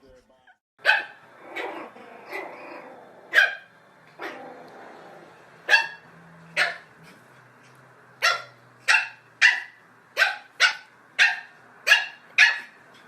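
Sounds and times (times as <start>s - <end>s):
dog barking: 0.8s - 2.6s, 3.3s - 4.4s, 5.6s - 7.0s, 8.2s - 12.8s.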